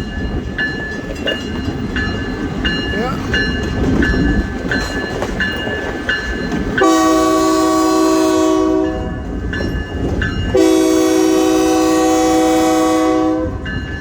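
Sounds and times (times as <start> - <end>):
moving train rumble: 0.0 - 14.0
locomotive air horn blasts: 6.8 - 9.2, 10.5 - 13.6.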